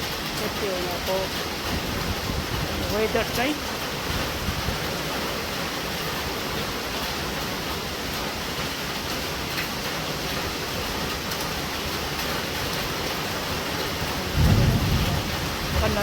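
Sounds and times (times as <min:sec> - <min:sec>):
steady rain hiss: 0:00.0 - 0:16.0
raindrop ticks: 0:06.9 - 0:16.0.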